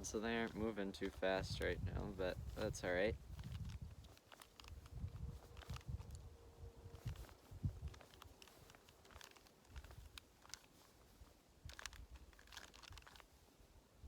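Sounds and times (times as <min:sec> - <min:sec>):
plastic puzzle clicks and rattles: 0:11.7 - 0:13.2.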